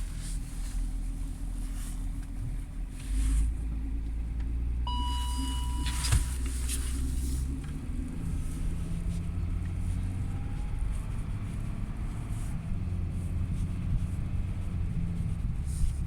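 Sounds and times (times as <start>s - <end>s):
diesel engine idling: 0.0s - 15.9s
high beep: 4.9s - 6.3s.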